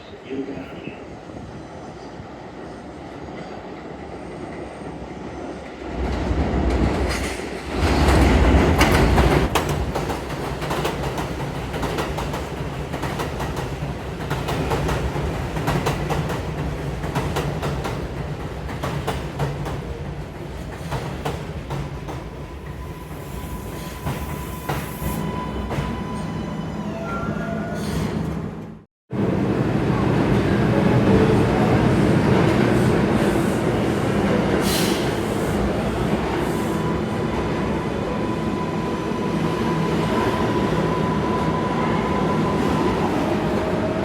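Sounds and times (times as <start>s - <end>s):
train wheels clattering over rails: 5.9s - 22.4s.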